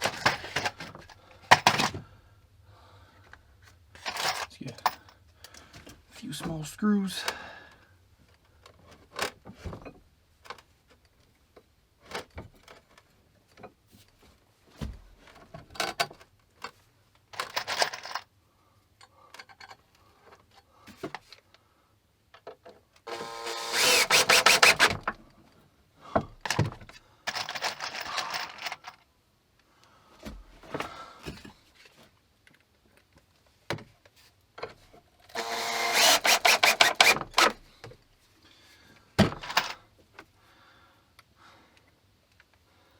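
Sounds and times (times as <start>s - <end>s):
loud harsh bursts: 23.1s - 25.0s, 35.4s - 37.5s
screws and tools knocking: 23.1s - 25.1s, 35.3s - 37.6s.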